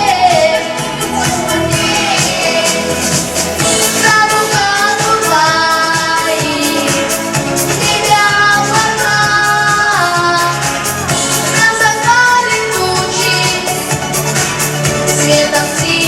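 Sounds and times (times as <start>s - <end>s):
instrumental accompaniment with beat: 0.0s - 16.0s
boy singing: 3.7s - 7.1s, 7.8s - 10.9s, 11.5s - 13.9s, 15.2s - 16.0s.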